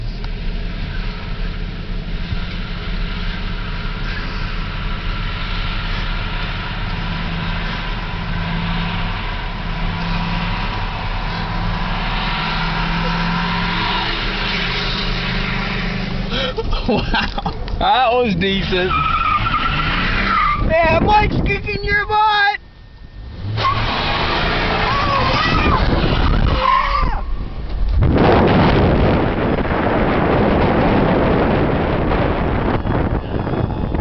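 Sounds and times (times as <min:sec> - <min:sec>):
spinning tyres hissing: 0:00.0 - 0:16.7, 0:17.8 - 0:20.7, 0:22.8 - 0:27.7
truck engine revving hard: 0:00.3 - 0:16.7, 0:18.4 - 0:20.7, 0:23.2 - 0:27.2, 0:27.9 - 0:34.0.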